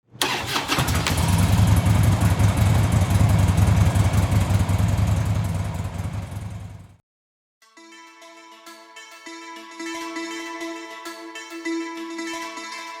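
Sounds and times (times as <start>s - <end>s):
motorcycle engine running: 0.6s - 7.0s.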